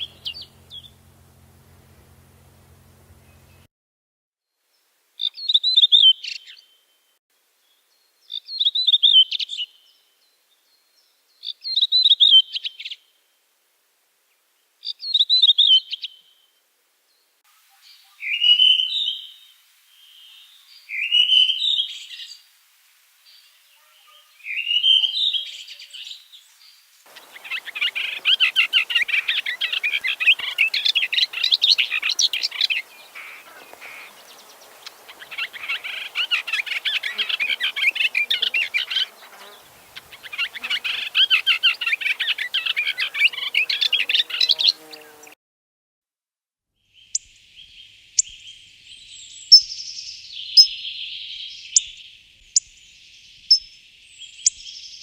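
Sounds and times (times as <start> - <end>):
songbird singing: 0.0 - 1.1, 7.6 - 13.1, 17.1 - 22.5, 23.3 - 45.4, 46.8 - 55.0.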